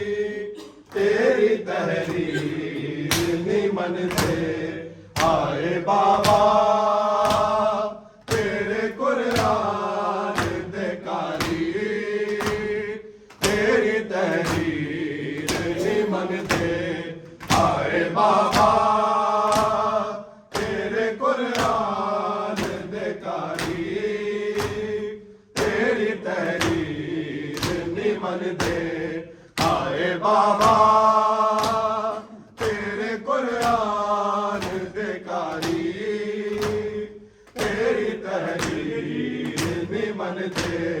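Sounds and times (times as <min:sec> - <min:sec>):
men chanting: 0:00.0 - 0:41.0
rhythmic chest slaps: 0:00.0 - 0:41.0.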